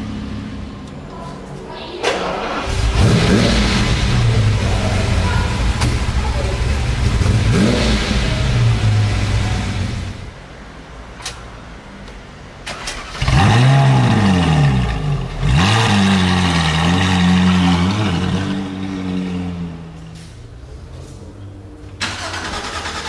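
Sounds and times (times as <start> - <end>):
sports car engine starting and revving: 2.2 - 10.3, 12.6 - 20.9, 22.0 - 23.0
another car engine running: 2.4 - 10.4
car engine idling: 2.4 - 11.3, 12.0 - 23.0.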